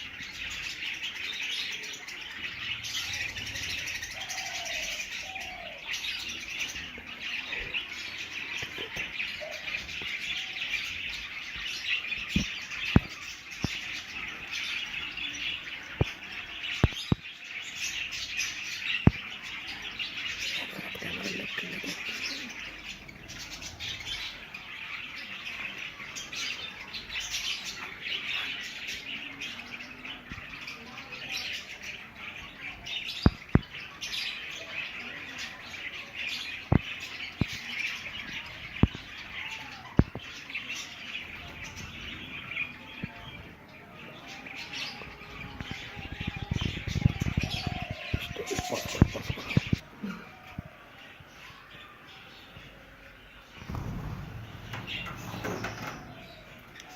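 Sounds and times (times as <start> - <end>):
budgerigars chattering: 20.4 - 22.8, 46.5 - 49.8, 53.6 - 56.5.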